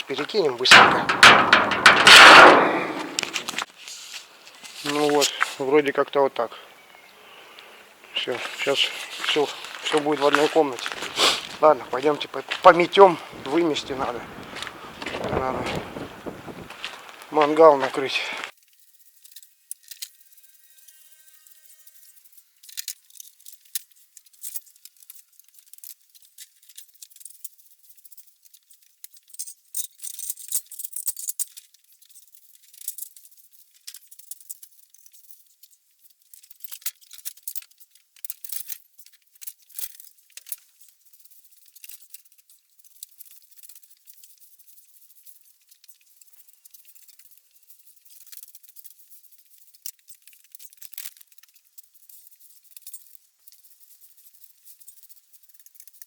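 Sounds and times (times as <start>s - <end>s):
broom sweeping: 3.8s - 5.6s.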